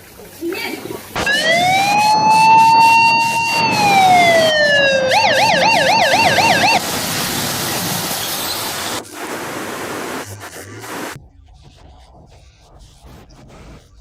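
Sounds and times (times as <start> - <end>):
emergency vehicle siren: 1.2 - 8.2
steady hiss: 6.8 - 11.2.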